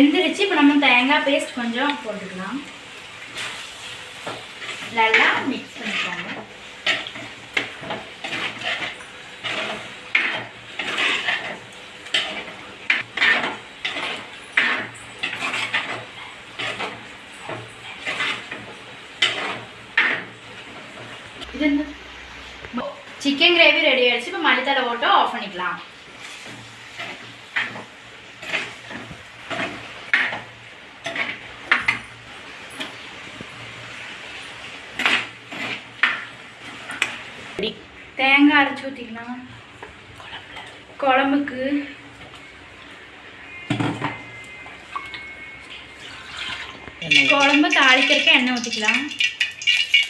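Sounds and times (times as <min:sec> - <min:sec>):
spoon stirring and scraping pot: 0:04.2 - 0:21.2, 0:26.2 - 0:32.0, 0:34.5 - 0:37.3, 0:46.1 - 0:50.0
ladle scraping a pot: 0:05.8 - 0:20.4.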